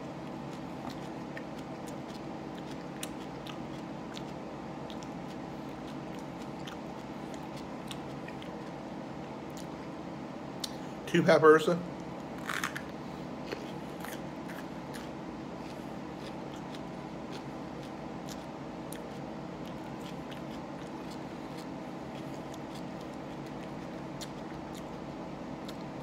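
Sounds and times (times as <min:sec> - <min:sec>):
person chewing pepper: 0:00.0 - 0:11.0, 0:11.9 - 0:26.0
background hum: 0:00.0 - 0:26.0.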